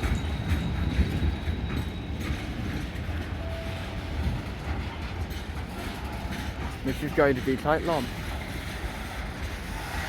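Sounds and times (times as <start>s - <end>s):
train low rumble: 0.0s - 10.0s.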